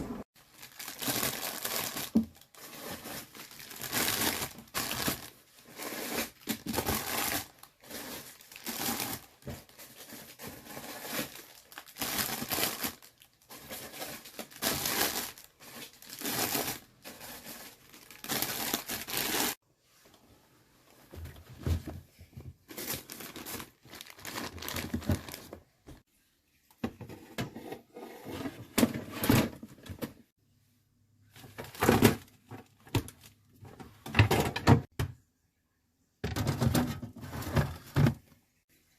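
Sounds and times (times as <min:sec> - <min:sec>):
plastic bags crinkling: 0:00.4 - 0:19.6, 0:22.7 - 0:25.8.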